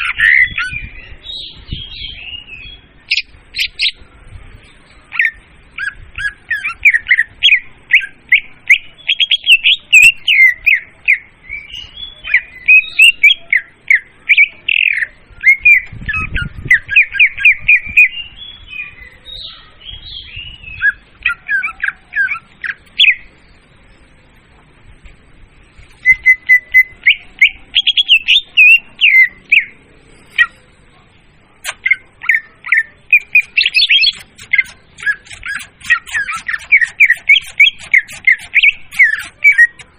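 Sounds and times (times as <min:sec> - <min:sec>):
bird chirps and whistles: 0:05.1 - 0:10.9, 0:11.5 - 0:23.3, 0:26.0 - 0:29.7, 0:31.6 - 0:39.9.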